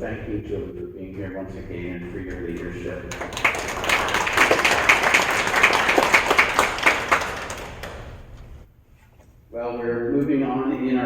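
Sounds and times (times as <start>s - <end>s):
crowd applauding: 1.9s - 8.6s.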